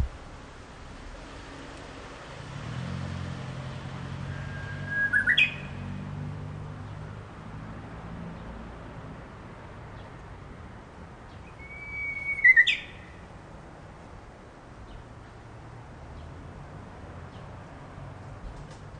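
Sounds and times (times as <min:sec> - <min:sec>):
bush warbler singing: 0:04.5 - 0:05.8, 0:11.3 - 0:13.2.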